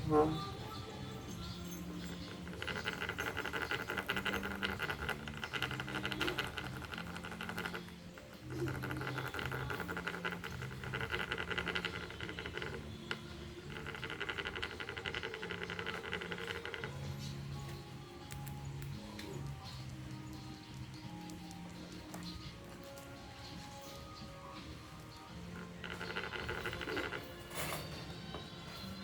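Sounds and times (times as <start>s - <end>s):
rapid dry scratching: 2.0s - 17.2s, 25.5s - 27.5s.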